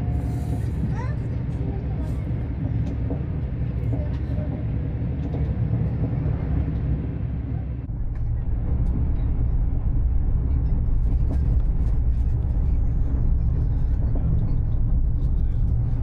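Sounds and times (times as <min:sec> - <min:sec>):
train rumbling on track: 0:00.0 - 0:16.0.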